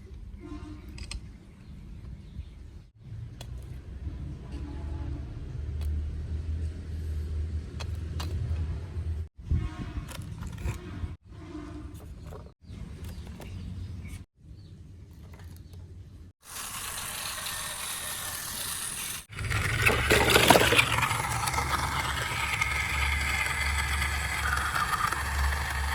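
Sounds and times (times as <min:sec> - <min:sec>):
plastic toy vehicles rattling: 0:15.1 - 0:25.9
mechanical running with low hum: 0:16.5 - 0:25.9.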